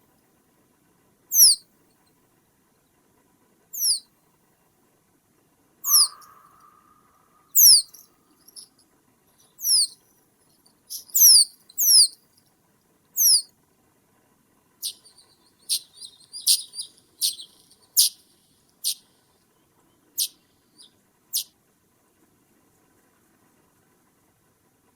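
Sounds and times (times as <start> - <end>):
small birds calling: 1.3 - 1.6, 3.8 - 4.0, 5.8 - 8.7, 9.4 - 10.0, 10.9 - 12.2, 13.2 - 13.5, 14.8 - 19.0, 20.2 - 21.5
short sharp bird chips: 1.4 - 1.6, 3.8 - 4.0, 5.8 - 7.0, 7.6 - 8.7, 9.5 - 10.0, 10.9 - 12.2, 13.2 - 13.5, 14.8 - 19.0.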